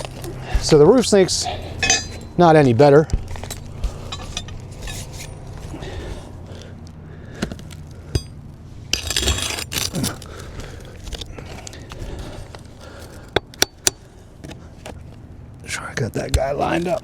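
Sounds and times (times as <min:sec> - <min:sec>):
metal tool scraping roof shingles: 0:03.2 - 0:06.0, 0:08.9 - 0:13.2.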